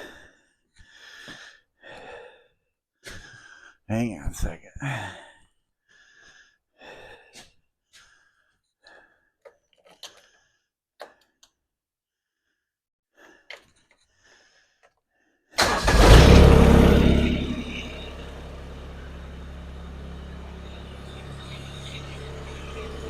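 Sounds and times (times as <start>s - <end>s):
tractor diesel engine running: 15.6s - 23.0s.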